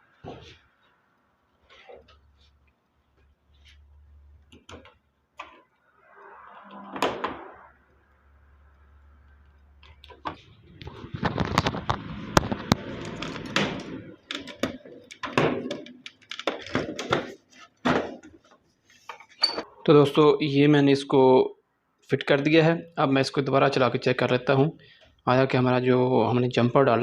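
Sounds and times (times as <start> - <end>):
plastic and metal parts clattering: 11.1 - 19.6.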